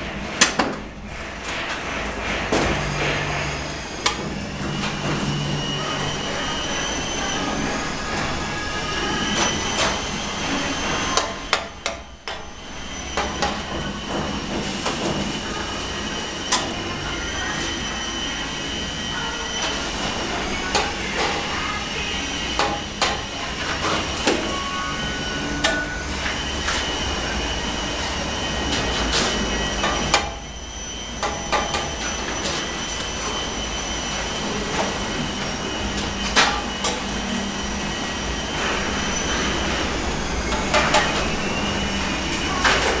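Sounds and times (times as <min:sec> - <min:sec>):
power tool motor whine: 0:01.6 - 0:11.5.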